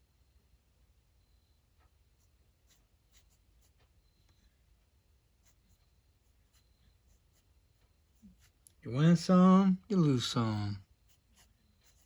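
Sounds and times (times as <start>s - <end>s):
pen scratching on paper: 2.2s - 3.9s, 5.4s - 8.8s, 10.8s - 12.0s.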